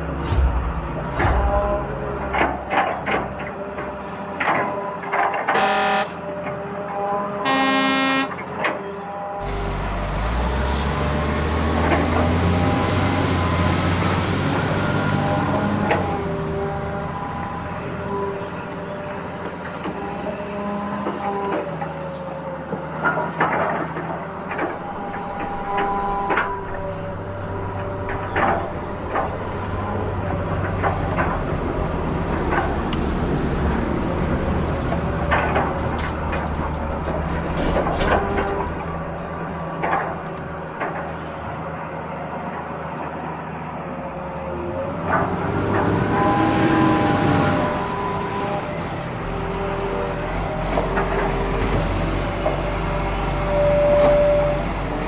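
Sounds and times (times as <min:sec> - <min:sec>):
truck engine rumbling: 0:00.0 - 0:55.0
short horn toot: 0:05.5 - 0:06.2, 0:07.4 - 0:08.4.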